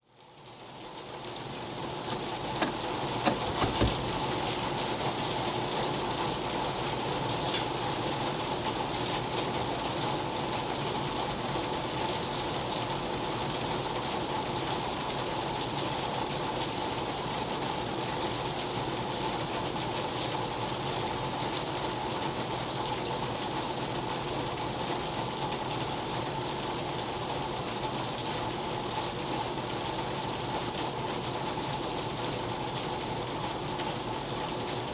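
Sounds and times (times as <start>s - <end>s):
steady rain: 0.0s - 34.9s
sharp taps: 2.1s - 4.1s.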